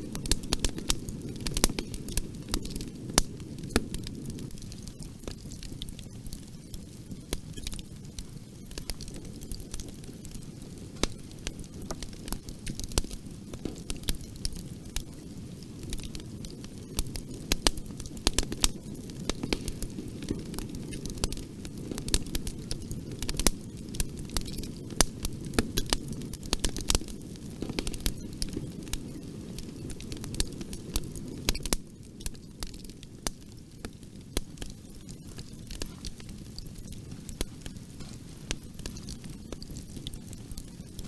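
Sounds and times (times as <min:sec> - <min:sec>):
wood fire crackling and popping: 0:00.0 - 0:41.0
flames rushing: 0:00.1 - 0:41.0.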